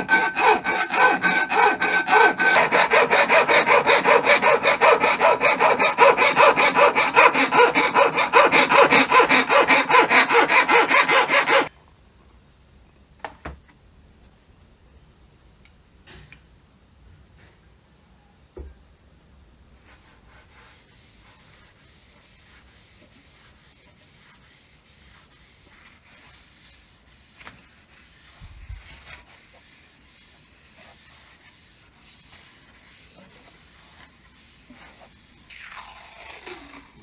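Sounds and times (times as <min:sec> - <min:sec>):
hand-sanding strokes on metal: 0:00.0 - 0:11.7, 0:20.0 - 0:35.5.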